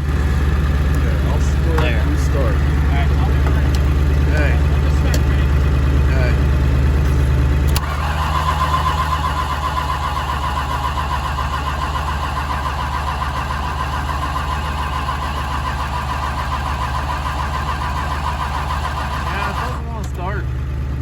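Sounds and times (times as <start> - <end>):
car engine cranking on starter: 0.0 - 21.0
diesel engine idling: 0.0 - 21.0
starter click: 7.0 - 20.2.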